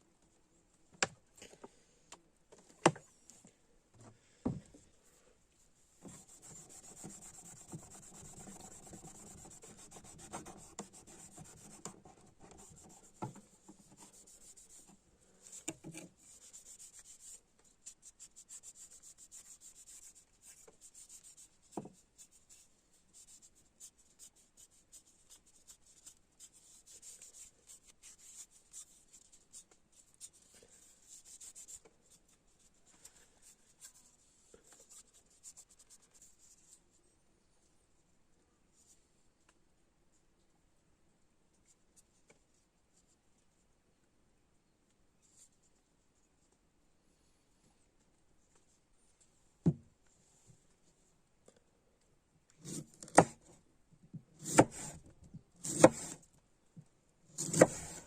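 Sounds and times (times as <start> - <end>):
scratchy rubbing by hand: 6.1 - 15.6, 16.2 - 21.6, 22.2 - 31.8.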